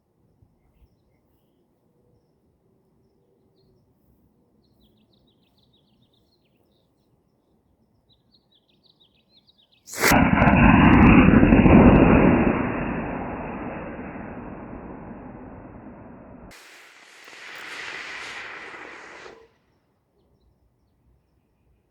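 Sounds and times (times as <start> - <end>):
rocket motor igniting crack: 9.9 - 19.4
rocket motor roaring: 9.9 - 19.4.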